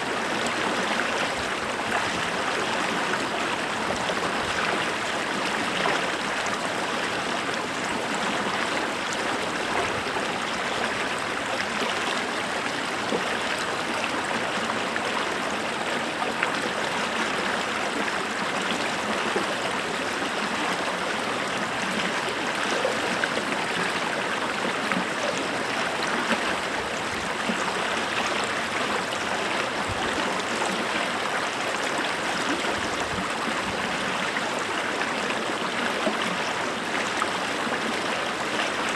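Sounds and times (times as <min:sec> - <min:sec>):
creek flowing over stones: 0:00.0 - 0:38.9.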